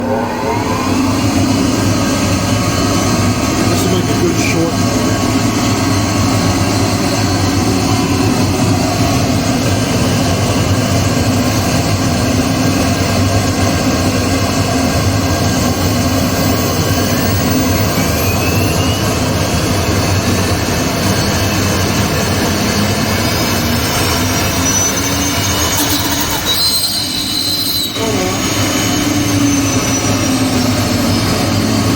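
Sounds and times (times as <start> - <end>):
thin whistle rising in pitch: 0.0 - 3.6, 15.4 - 31.9
cnc router running: 0.0 - 31.9.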